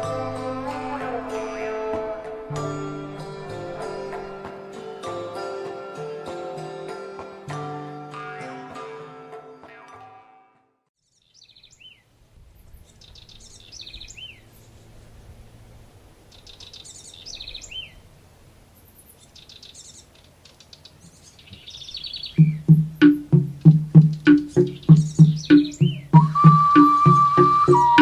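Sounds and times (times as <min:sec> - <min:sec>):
wild birds singing: 0:11.0 - 0:15.2, 0:16.2 - 0:28.0
faint low outdoor rumble: 0:11.8 - 0:22.7
low pitched instrument notes: 0:22.4 - 0:28.0.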